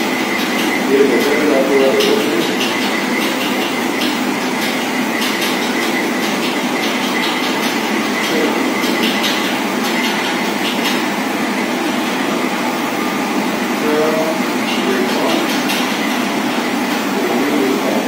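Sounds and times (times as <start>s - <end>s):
train running on rails: 0.0s - 18.0s.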